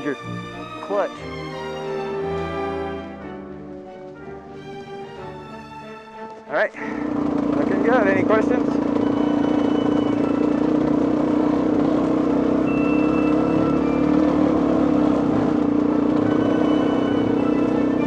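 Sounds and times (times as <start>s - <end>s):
two-stroke dirt bike engine running: 6.8s - 18.0s.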